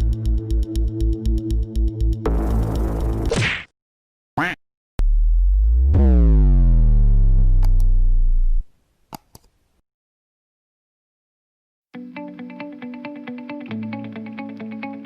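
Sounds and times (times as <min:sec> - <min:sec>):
deep synthesized pitch-bending tone: 0:05.0 - 0:08.6.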